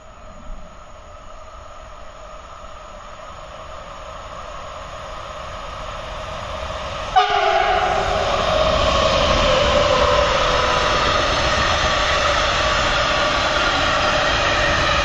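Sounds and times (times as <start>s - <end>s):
electric locomotive humming: 0.0s - 15.0s
locomotive horn: 7.2s - 8.4s.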